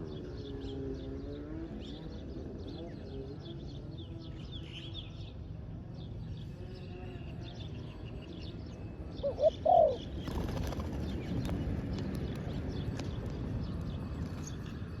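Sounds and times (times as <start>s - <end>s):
dove cooing: 9.2s - 10.1s.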